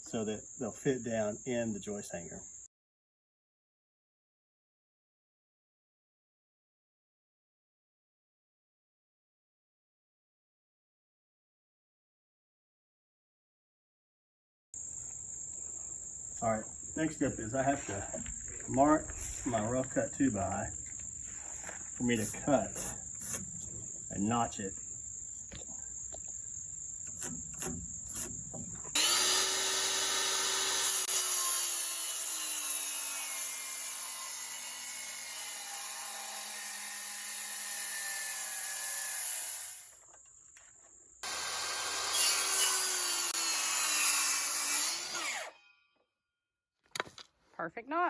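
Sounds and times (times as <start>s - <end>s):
crickets chirping: 0.0s - 2.7s, 14.8s - 29.0s
power saw cutting wood: 22.0s - 23.5s, 27.1s - 40.0s, 41.2s - 45.7s.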